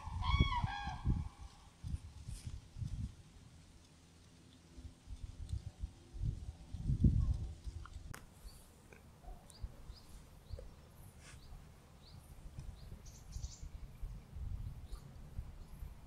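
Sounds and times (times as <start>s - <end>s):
small birds chirping: 6.8s - 16.0s.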